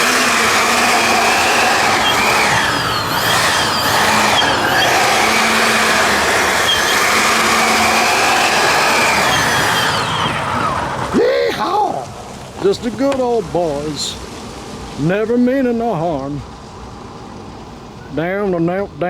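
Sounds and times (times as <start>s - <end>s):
electric ducted fans whining: 0.0s - 19.0s.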